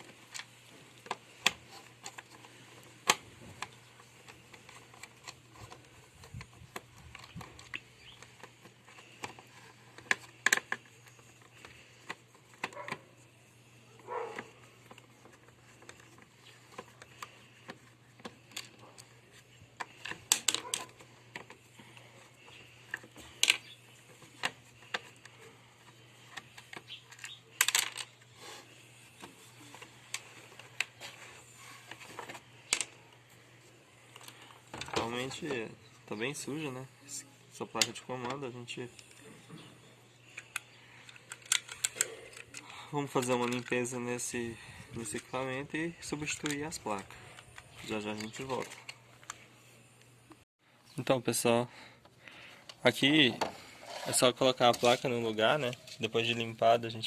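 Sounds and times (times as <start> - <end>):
plastic parts clicking and knocking: 0.0 - 13.1, 14.0 - 33.2, 34.0 - 35.6, 37.8 - 44.0, 46.1 - 49.4.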